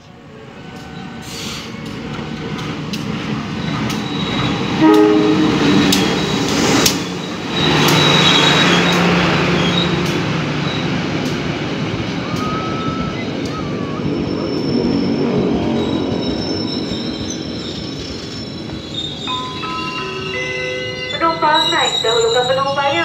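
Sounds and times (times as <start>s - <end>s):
diesel locomotive engine droning: 0.0s - 23.0s
locomotive horn: 4.8s - 6.1s.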